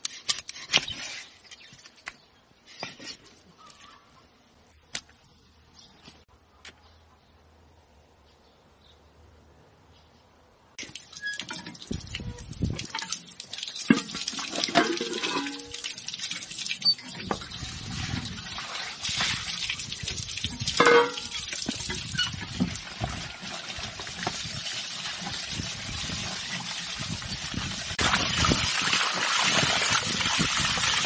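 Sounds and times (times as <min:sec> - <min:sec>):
liquid sloshing and stirring: 0:10.8 - 0:26.8.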